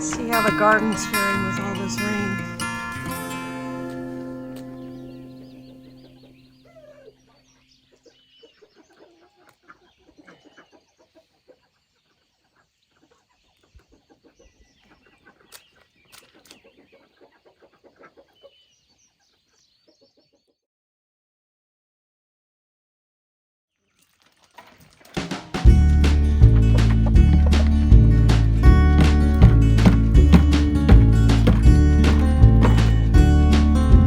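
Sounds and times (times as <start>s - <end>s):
guitar music: 0.0s - 6.5s, 25.6s - 34.0s
chickens clucking quietly: 6.0s - 20.6s.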